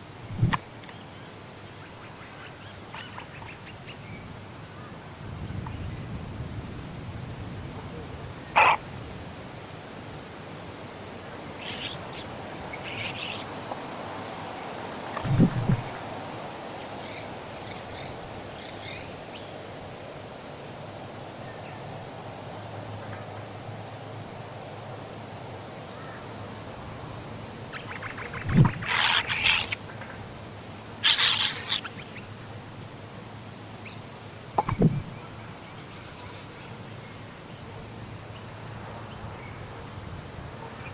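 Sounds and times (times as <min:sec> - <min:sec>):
harsh bird calls: 0:07.2 - 0:09.0, 0:11.4 - 0:16.1, 0:27.7 - 0:32.4.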